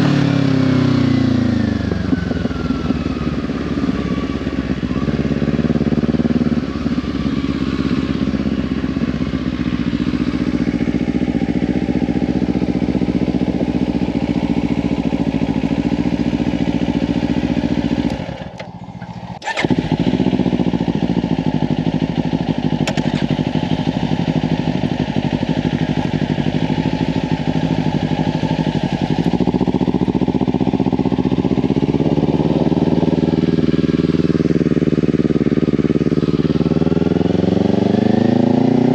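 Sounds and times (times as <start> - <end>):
motorcycle engine at road speed: 0.0 - 38.9.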